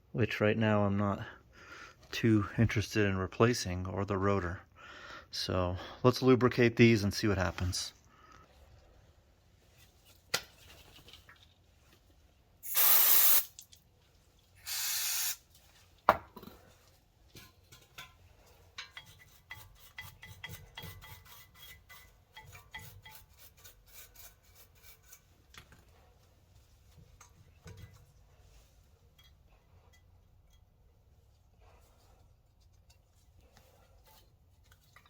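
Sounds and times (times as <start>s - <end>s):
aerosol can spraying: 12.6s - 13.6s, 14.6s - 15.4s.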